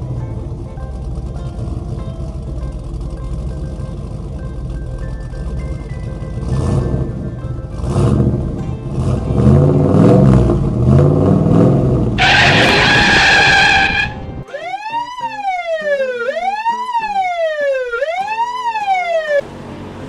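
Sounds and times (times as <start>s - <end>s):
bright high blare: 12.2s - 19.4s
wailing siren: 12.2s - 19.4s.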